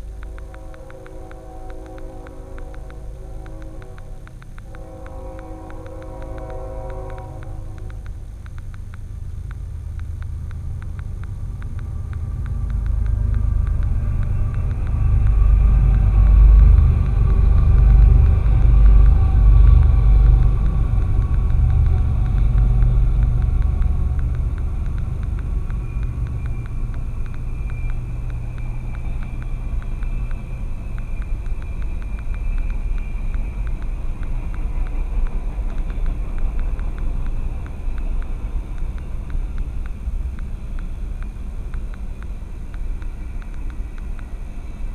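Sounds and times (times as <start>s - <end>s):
train rumbling by: 0.0s - 8.5s, 9.4s - 44.9s.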